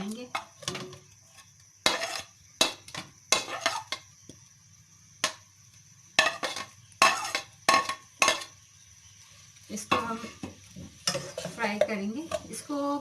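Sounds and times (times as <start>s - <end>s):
metal utensil clanking on frying pan: 6.2s - 8.5s.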